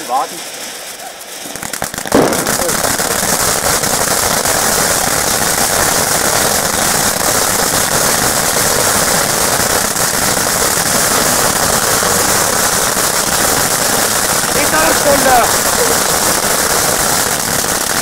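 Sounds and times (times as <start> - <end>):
firework crackling: 0.0 - 18.0.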